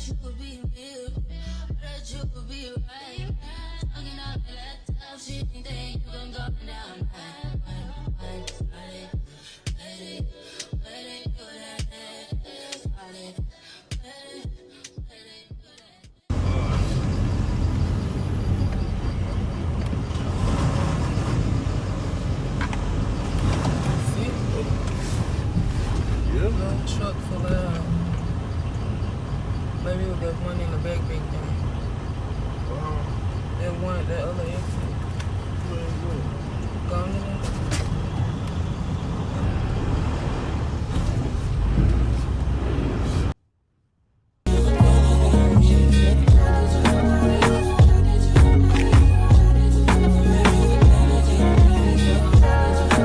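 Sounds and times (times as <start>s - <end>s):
music: 0.0s - 16.2s, 44.5s - 53.0s
semi truck engine and road noise: 16.3s - 43.4s, 44.5s - 53.0s.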